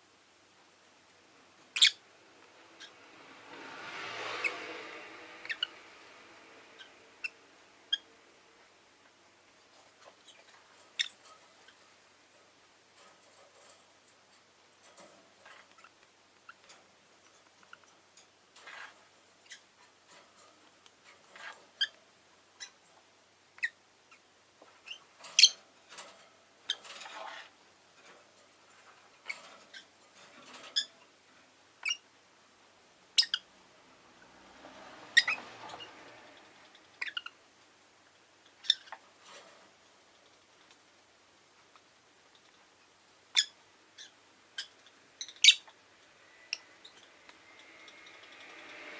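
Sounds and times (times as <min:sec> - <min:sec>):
lovebirds ticking and chipping: 0:01.7 - 0:02.1, 0:05.4 - 0:06.0, 0:09.7 - 0:12.0, 0:18.6 - 0:27.6, 0:31.8 - 0:32.1, 0:33.1 - 0:33.5, 0:35.0 - 0:37.5, 0:38.4 - 0:39.2, 0:43.2 - 0:48.6.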